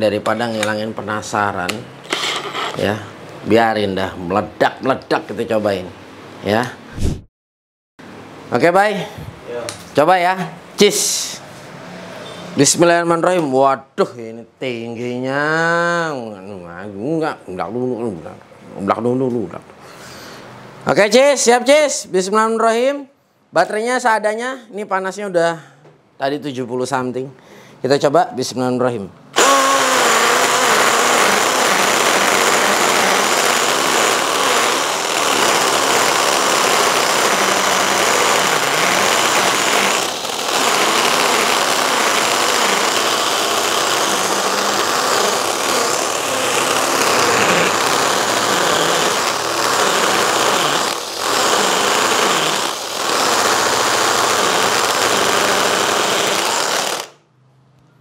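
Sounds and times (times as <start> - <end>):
impact drill boring into masonry: 29.4 - 57.2.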